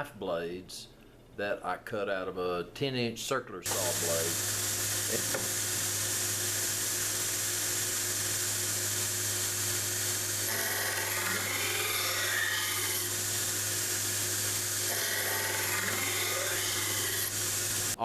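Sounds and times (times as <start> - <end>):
power grinder running: 3.7 - 18.0
steel whining against abrasive: 3.7 - 18.0.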